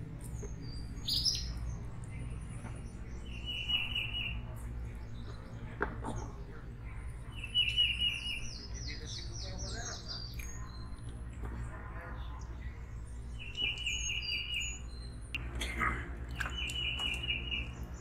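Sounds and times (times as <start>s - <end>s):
songbird trill: 0.0s - 15.5s, 16.2s - 18.0s
low steady hum: 0.0s - 18.0s
high bird chirps: 0.2s - 5.6s, 7.1s - 11.0s, 13.2s - 15.4s, 16.3s - 18.0s.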